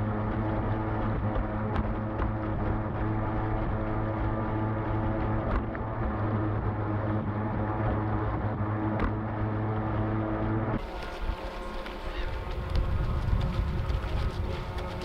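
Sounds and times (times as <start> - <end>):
electric boat motor running: 10.8 - 15.0
water noise: 10.8 - 15.0.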